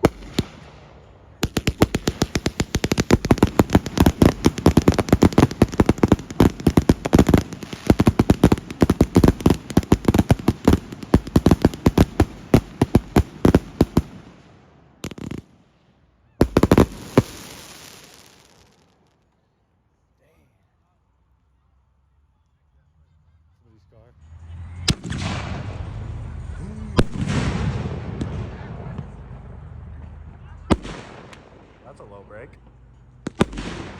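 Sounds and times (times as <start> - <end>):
fireworks bangs: 0.0 - 15.6, 16.4 - 19.0, 24.8 - 32.2, 33.2 - 33.9.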